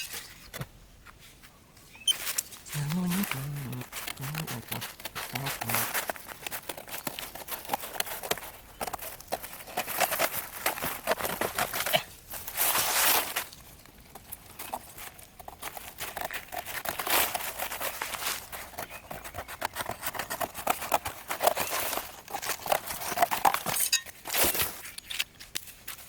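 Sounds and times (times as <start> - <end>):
crinkling and rustling: 0.0 - 26.0.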